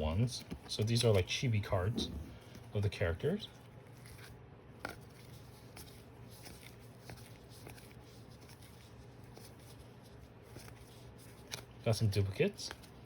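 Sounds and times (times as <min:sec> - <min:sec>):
steady low hum: 0:00.0 - 0:03.7
trading cards being handled: 0:00.2 - 0:13.0.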